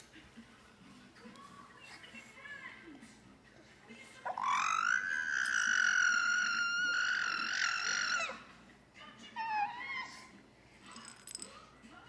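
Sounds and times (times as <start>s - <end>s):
squeaky vocal sound: 4.2s - 8.5s
baby squealing: 4.3s - 8.5s, 9.4s - 10.3s.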